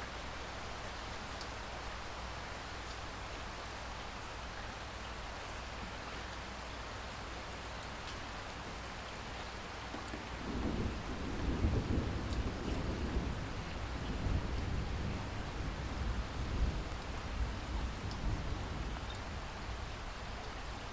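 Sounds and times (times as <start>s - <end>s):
rain hissing: 8.2s - 20.9s
rolling thunder rumble: 10.2s - 19.9s.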